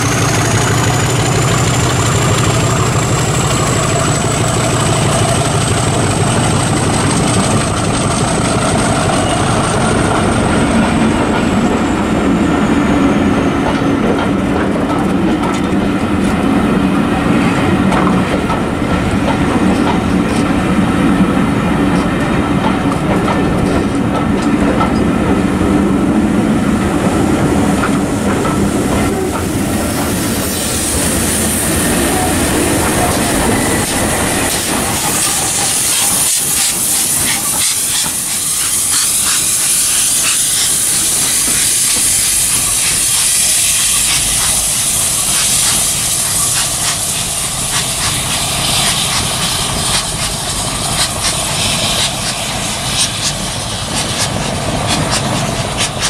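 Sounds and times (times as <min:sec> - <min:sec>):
wheels clacking over rail joints: 0:00.0 - 0:56.0
steam hissing: 0:26.4 - 0:56.0.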